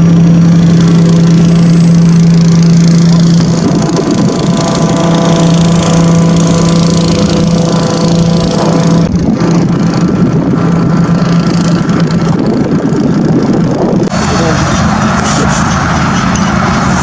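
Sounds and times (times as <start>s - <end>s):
engine running loudly: 0.0s - 17.0s.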